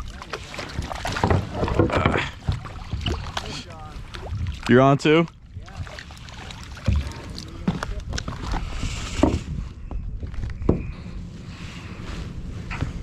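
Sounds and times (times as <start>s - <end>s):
wind rumble on microphone: 6.8s - 13.0s.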